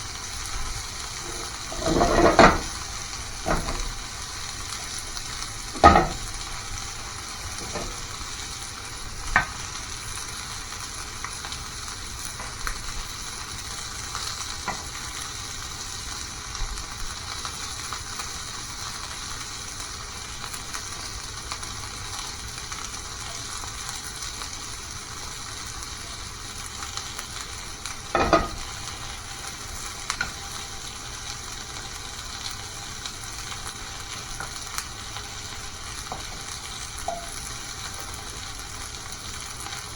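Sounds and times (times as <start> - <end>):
food sizzling in a pan: 0.0 - 39.9.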